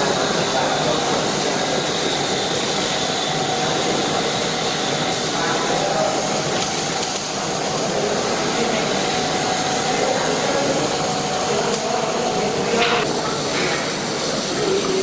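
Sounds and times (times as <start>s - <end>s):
workshop machinery drone and hiss: 0.0s - 15.0s.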